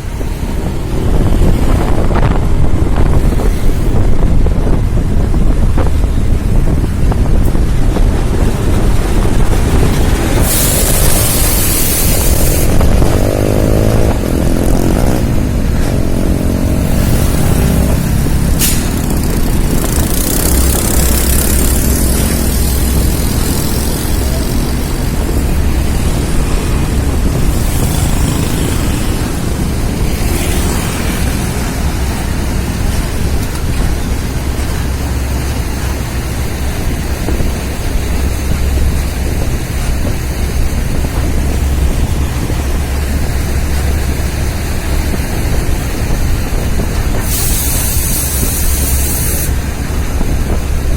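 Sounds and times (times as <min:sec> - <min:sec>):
diesel truck engine rumbling: 0:00.0 - 0:50.9
hissing bursts: 0:09.0 - 0:13.0, 0:16.8 - 0:33.3, 0:47.0 - 0:50.3.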